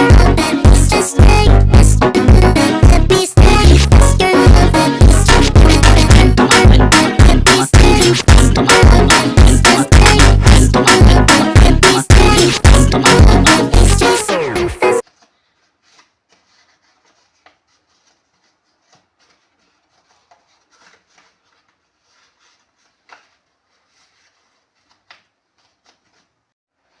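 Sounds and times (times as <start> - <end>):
paper rustling and crinkling: 15.0 - 27.0.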